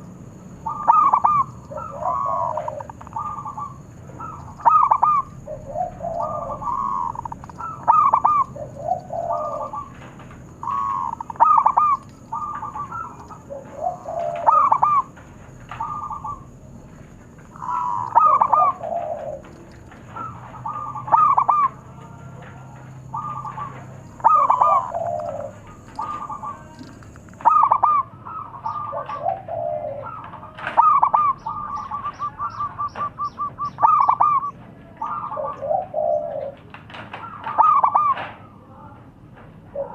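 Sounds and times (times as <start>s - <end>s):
fast run of bird notes: 0.0s - 30.1s
doves cooing: 0.0s - 39.9s.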